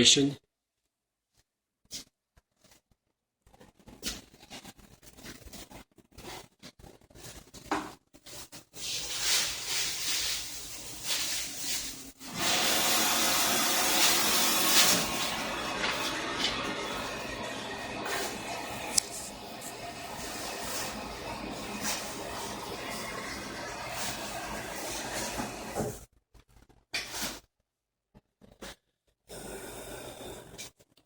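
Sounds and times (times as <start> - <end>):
air exchanger fan blowing: 12.2 - 25.9.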